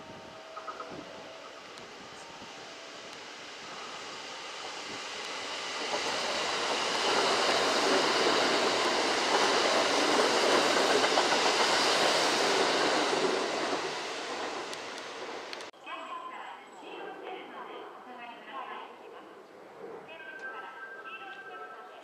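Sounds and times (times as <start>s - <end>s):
electric train rumbling: 0.0s - 15.7s.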